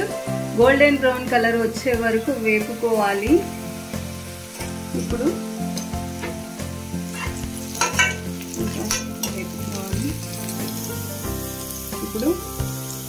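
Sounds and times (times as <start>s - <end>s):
onions sizzling in hot oil: 0.0s - 13.0s
metal spatula scraping pan: 7.1s - 9.6s.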